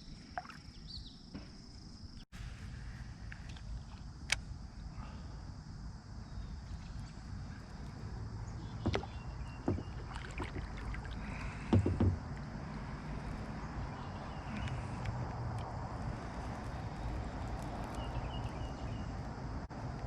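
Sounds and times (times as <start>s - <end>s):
low rumble of water and wind: 2.4s - 20.0s
knocks on a kayak: 8.8s - 10.6s, 11.7s - 12.3s.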